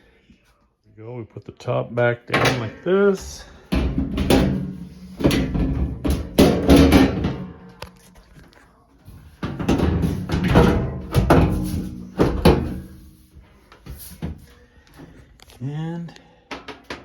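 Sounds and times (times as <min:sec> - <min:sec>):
metal panel knocks and clatter: 0:03.7 - 0:07.7, 0:09.4 - 0:13.1.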